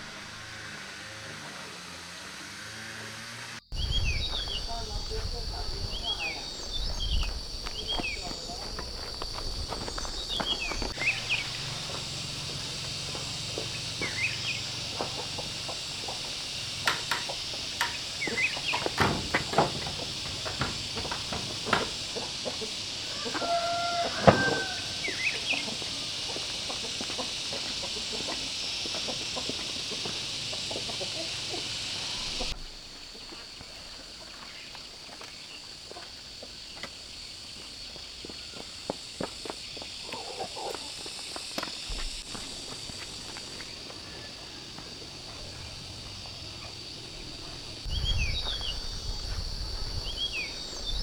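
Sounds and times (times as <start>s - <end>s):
steady high hiss: 0.0s - 51.0s
chickens clucking: 3.8s - 34.9s, 40.0s - 51.0s
long hen call: 11.0s - 32.5s.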